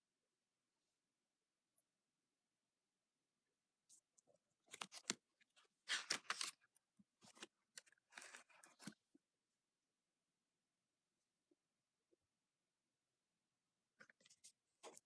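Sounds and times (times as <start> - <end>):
book pages rustling: 4.6 - 9.0.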